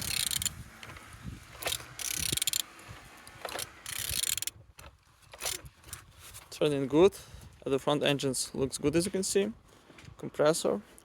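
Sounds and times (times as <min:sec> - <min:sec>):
ratchet wrench clicking: 0:00.0 - 0:00.6, 0:01.6 - 0:02.7, 0:03.4 - 0:04.6.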